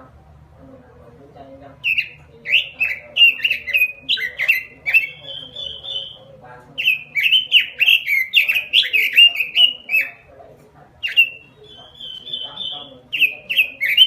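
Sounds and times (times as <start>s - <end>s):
bird singing falling notes: 1.8s - 10.2s.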